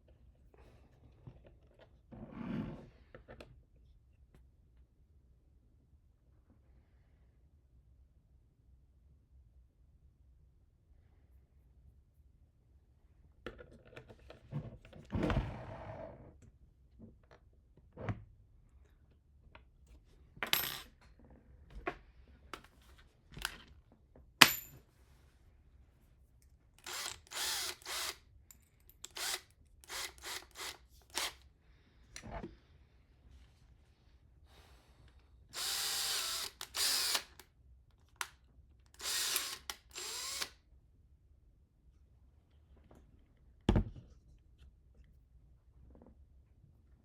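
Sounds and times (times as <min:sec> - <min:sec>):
power driver whirring: 0:26.8 - 0:28.2, 0:29.0 - 0:31.4, 0:35.6 - 0:37.4, 0:38.9 - 0:40.6.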